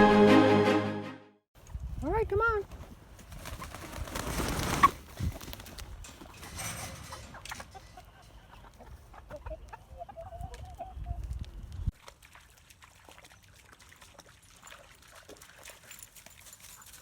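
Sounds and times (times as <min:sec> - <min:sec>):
rustling noise: 0:02.6 - 0:08.2.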